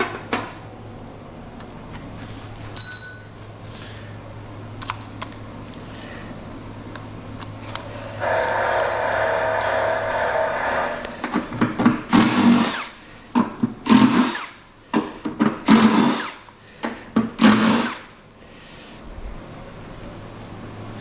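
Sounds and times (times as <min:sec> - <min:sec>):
handheld power tool running: 0:12.1 - 0:13.0, 0:13.8 - 0:14.6, 0:15.7 - 0:16.5, 0:17.4 - 0:18.1.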